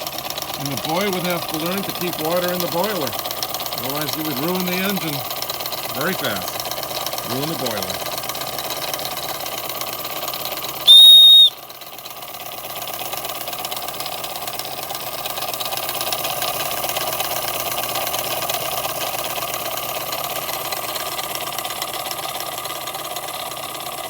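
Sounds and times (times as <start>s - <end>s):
toy steam engine running: 0.0s - 24.0s
steam whistle: 10.8s - 11.6s.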